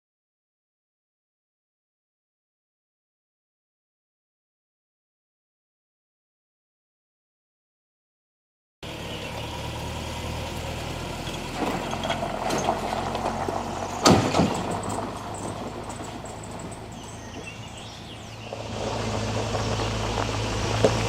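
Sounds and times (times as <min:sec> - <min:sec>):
engine idling: 0:08.8 - 0:21.0
sharp clatter: 0:11.5 - 0:21.0.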